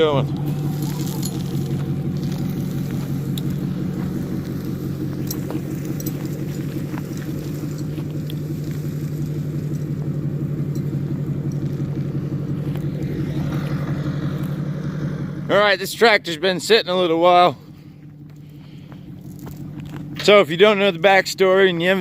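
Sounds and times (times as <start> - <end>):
pickup truck engine running: 0.0 - 22.0
light clicks and rattles: 3.0 - 12.0.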